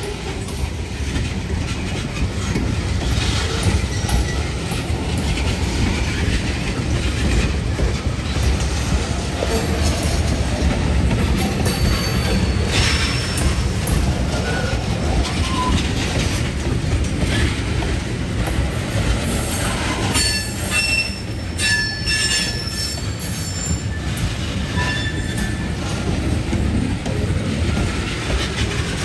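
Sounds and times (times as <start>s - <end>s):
train wheels rumbling on rails: 0.0s - 29.0s
high metal squeals: 20.2s - 24.1s, 24.7s - 25.7s.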